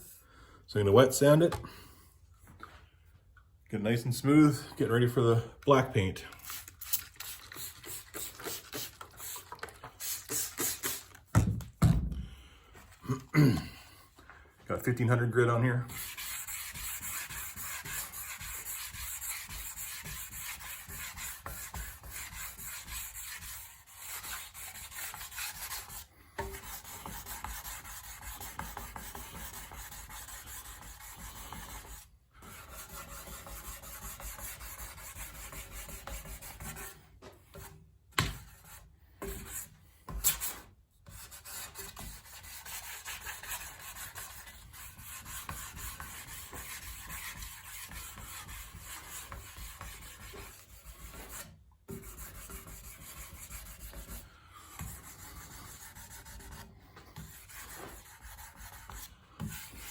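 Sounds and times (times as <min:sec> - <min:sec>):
wet sanding rubbing: 0:06.4 - 0:11.2, 0:15.9 - 0:37.0, 0:40.2 - 0:59.9.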